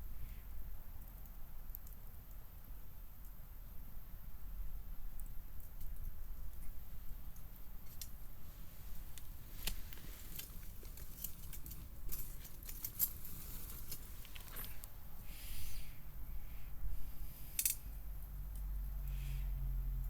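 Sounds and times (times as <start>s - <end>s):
wood fire crackling and popping: 5.0s - 15.0s.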